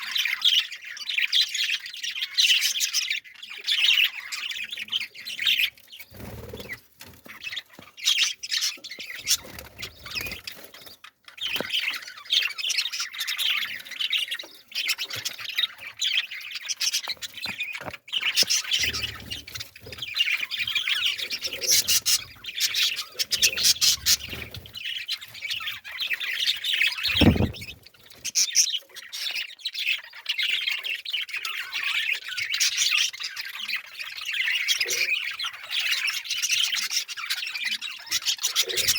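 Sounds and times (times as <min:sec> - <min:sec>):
flock of birds squawking: 0:00.0 - 0:38.9.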